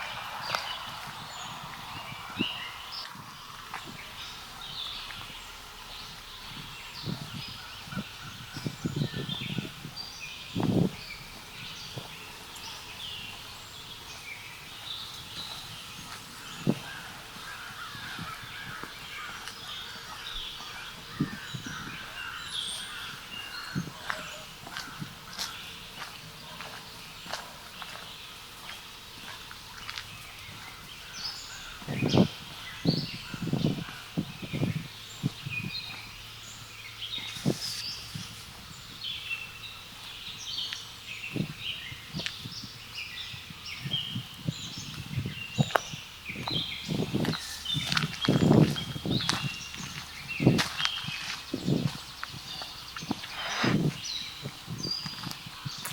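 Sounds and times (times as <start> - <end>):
soft footsteps: 0.0 - 7.4, 45.6 - 55.9
footsteps on ground: 0.0 - 36.1, 37.0 - 42.6, 43.8 - 55.9
soft outdoor background: 0.0 - 55.9
songbirds chirping and singing: 0.0 - 55.9
wild birds chattering: 0.0 - 55.9.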